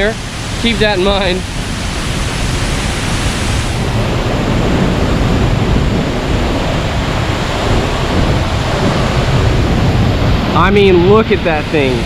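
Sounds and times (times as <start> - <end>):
microphone rumble: 0.0 - 12.0
waterfall roaring: 0.0 - 12.0.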